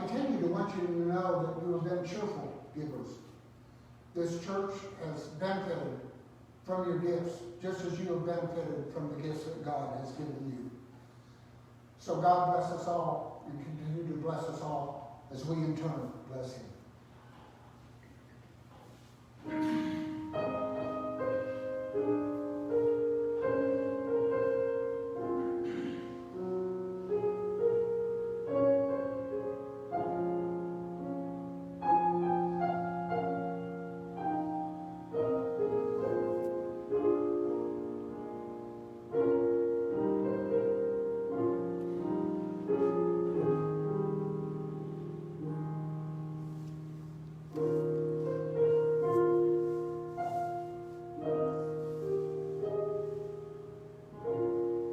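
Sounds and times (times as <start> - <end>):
slow solo piano piece: 19.4 - 54.9.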